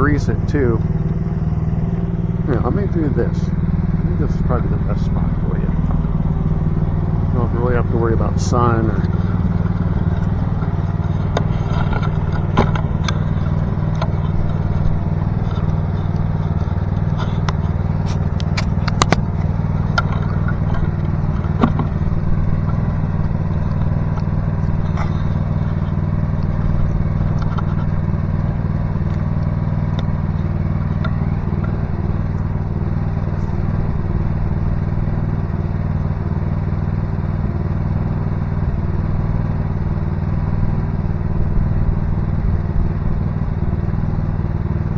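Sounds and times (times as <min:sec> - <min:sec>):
excavator engine running: 0:00.0 - 0:44.9
metallic clanks and clicks: 0:09.0 - 0:21.9.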